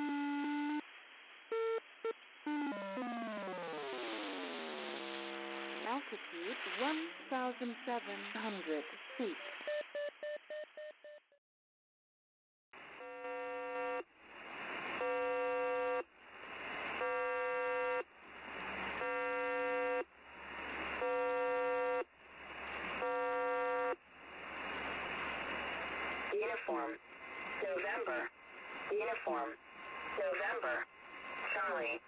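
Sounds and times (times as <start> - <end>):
radio static hiss: 0.8 - 9.8
buzzing radio tones: 1.5 - 8.6.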